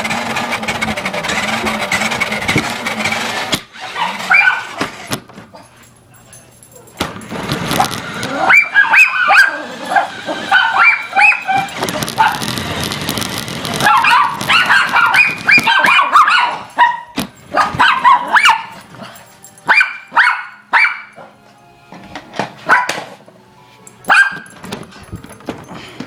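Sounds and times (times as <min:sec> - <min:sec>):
dog barking and yipping: 0:03.3 - 0:05.0, 0:07.6 - 0:12.6, 0:13.7 - 0:21.3, 0:22.6 - 0:23.1, 0:24.1 - 0:24.6.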